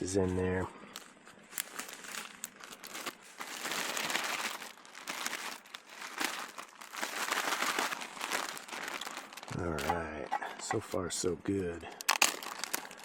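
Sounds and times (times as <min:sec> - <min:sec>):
plastic bag crinkling: 0:00.0 - 0:11.0, 0:11.8 - 0:13.0.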